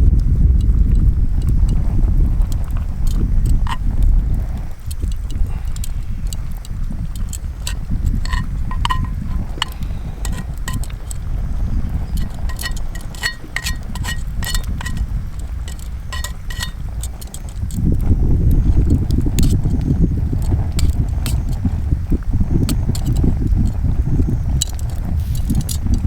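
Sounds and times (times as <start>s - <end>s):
steady low rumble: 0.0s - 26.0s
utensils clinking on metal pot: 7.1s - 17.8s, 20.7s - 21.6s.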